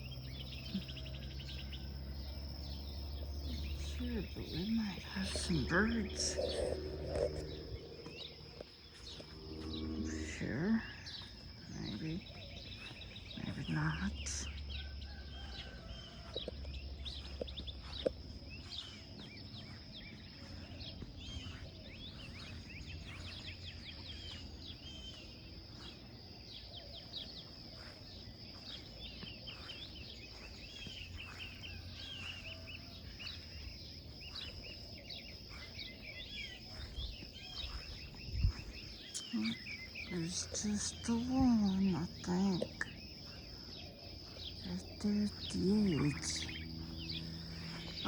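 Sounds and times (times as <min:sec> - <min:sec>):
birds chirping and calling: 0:00.0 - 0:48.0
low rumble: 0:02.7 - 0:12.4
steady high-pitched tone: 0:03.8 - 0:08.4.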